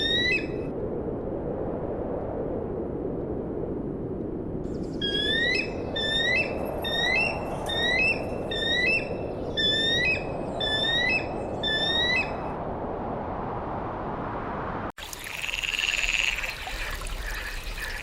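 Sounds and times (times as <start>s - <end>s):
bird whistling rising call: 0.0s - 0.6s, 5.0s - 12.4s.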